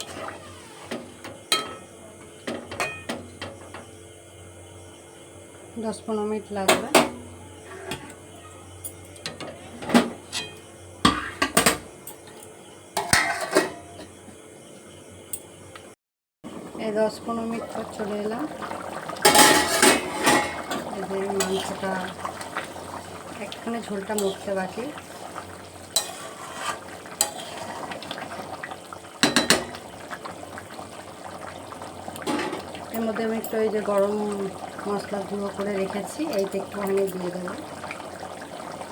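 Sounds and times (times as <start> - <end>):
cookware clattering: 0.0 - 3.6, 13.0 - 14.0, 19.2 - 22.0, 26.0 - 27.6, 29.2 - 29.8, 32.2 - 33.6
food sizzling in a pan: 0.0 - 8.9, 16.5 - 38.9.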